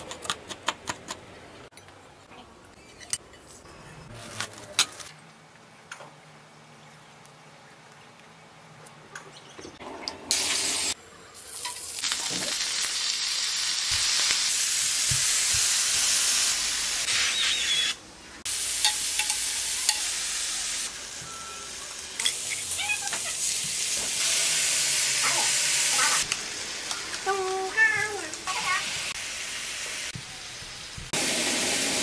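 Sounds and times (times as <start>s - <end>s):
food sizzling in hot oil: 10.3s - 17.9s, 18.5s - 32.0s
metal tongs clicking on pan: 18.8s - 20.1s.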